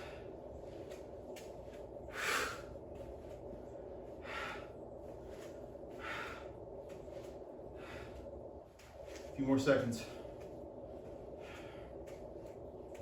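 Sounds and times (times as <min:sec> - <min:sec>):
man breathing hard: 0:00.0 - 0:00.8, 0:02.0 - 0:08.6, 0:10.0 - 0:12.6
low hum: 0:00.0 - 0:13.0.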